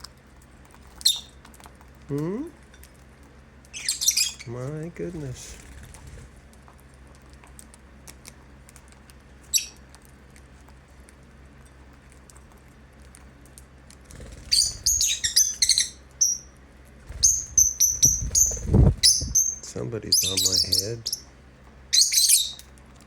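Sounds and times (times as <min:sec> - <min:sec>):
lovebirds chirping: 0:01.0 - 0:01.4, 0:03.7 - 0:04.6, 0:09.5 - 0:09.8, 0:14.2 - 0:22.7.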